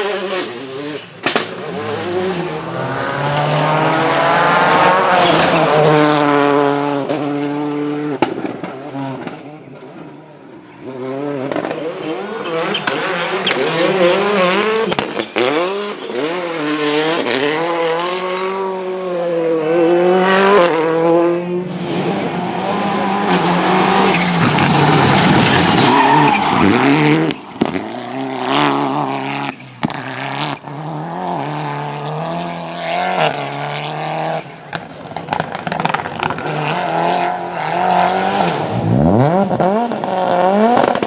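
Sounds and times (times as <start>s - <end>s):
tyres skidding on loose surface: 0.0s - 7.6s, 10.8s - 18.7s, 21.7s - 36.8s
rally car engine revving: 0.0s - 41.0s.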